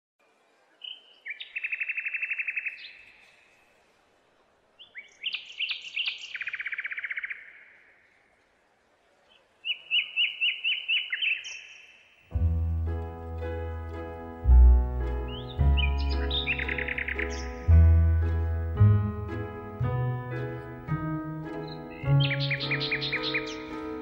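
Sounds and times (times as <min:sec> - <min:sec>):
songbird singing: 0:00.2 - 0:03.8, 0:04.8 - 0:08.4, 0:09.2 - 0:24.0
music: 0:12.3 - 0:24.0.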